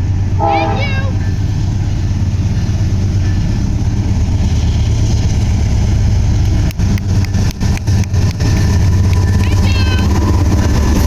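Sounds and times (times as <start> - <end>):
train rumbling past: 0.0 - 11.0.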